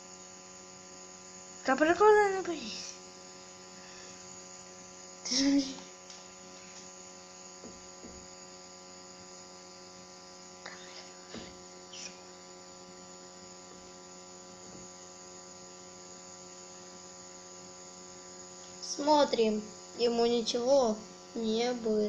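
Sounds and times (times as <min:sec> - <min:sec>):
faint electrical hum: 0:00.0 - 0:22.0.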